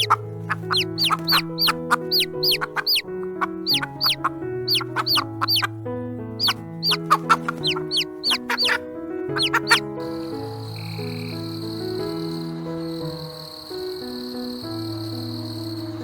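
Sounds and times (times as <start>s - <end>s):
chicks peeping: 0.0s - 5.8s, 6.4s - 11.5s
gentle background music: 0.0s - 16.0s.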